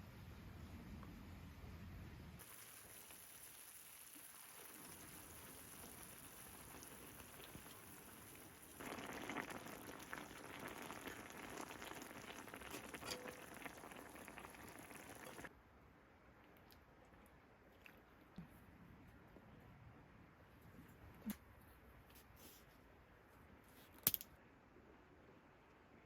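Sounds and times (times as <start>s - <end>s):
pattering hiss of water: 2.4s - 10.9s.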